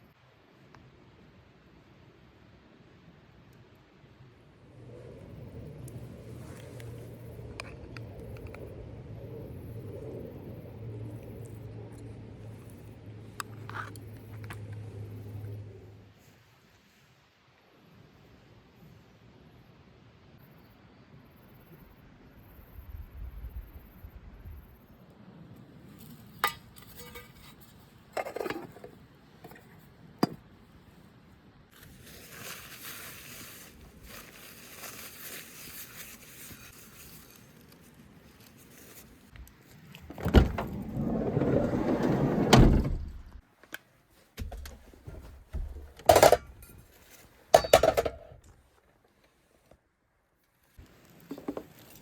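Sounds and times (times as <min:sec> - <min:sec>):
rustling: 0:31.7 - 0:47.5.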